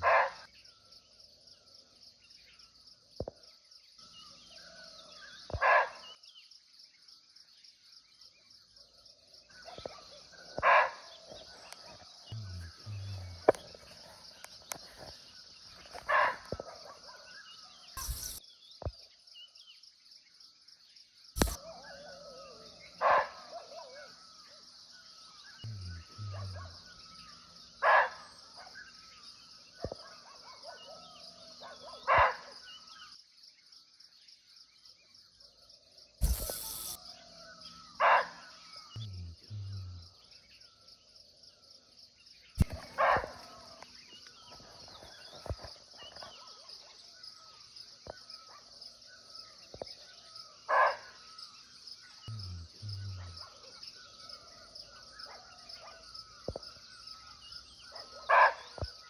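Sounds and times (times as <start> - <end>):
forest insects droning: 0.0 - 59.0
deer barking: 25.7 - 26.8.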